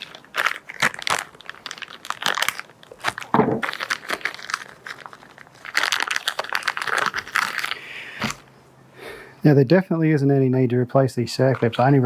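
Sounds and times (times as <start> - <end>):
crackly packaging handling: 0.0 - 8.5, 11.4 - 12.0.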